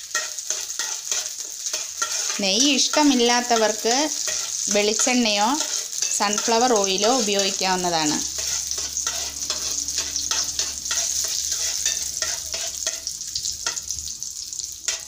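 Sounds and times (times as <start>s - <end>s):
metal spoon scraping a pan: 0.0s - 14.0s
nuts sizzling in hot fat: 0.0s - 15.0s.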